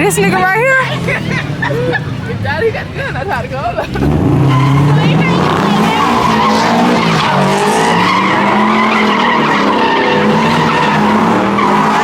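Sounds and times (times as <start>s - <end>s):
tyres screeching: 0.0s - 12.0s
engine at high revs: 3.8s - 12.0s.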